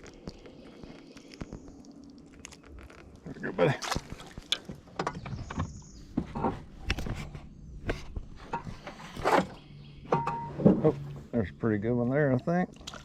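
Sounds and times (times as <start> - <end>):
fishing gear knocks and clicks: 3.8 - 5.9.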